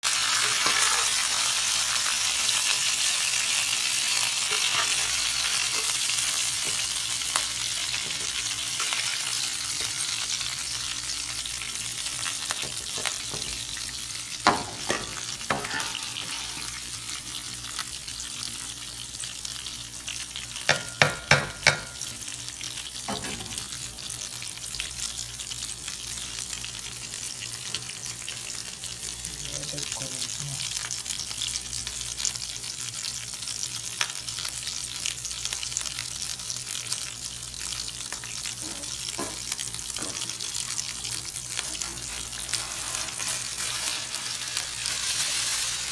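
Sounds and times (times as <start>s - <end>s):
chicken sizzling in hot oil: 0.0s - 45.9s
utensil knocking on pan: 20.7s - 22.0s.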